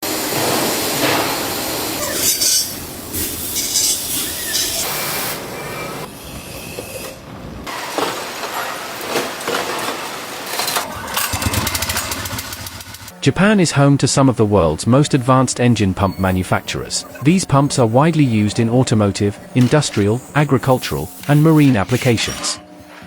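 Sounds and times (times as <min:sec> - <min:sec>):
factory machinery clatter: 0:00.1 - 0:06.1, 0:07.6 - 0:23.0
machinery hiss: 0:12.5 - 0:23.0.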